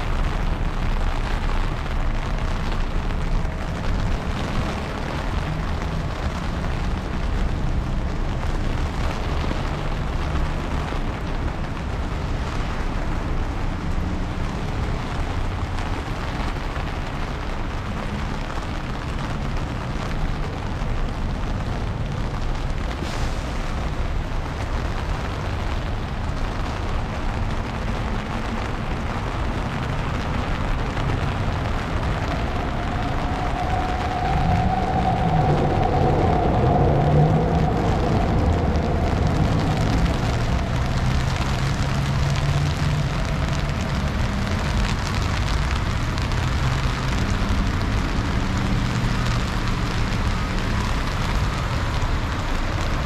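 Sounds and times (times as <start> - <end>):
heavy rain hissing: 0.0 - 53.0
low rumble: 17.6 - 53.0.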